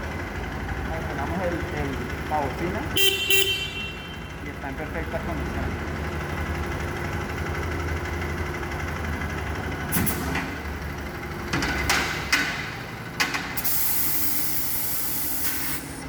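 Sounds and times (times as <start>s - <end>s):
motorcycle engine idling: 0.0s - 9.9s
clicks and clunks: 11.5s - 13.6s
compressed air hissing: 13.6s - 16.0s.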